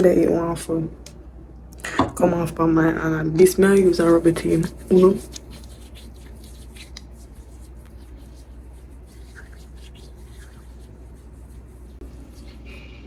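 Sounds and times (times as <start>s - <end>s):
hands rubbing skin: 3.7s - 13.0s.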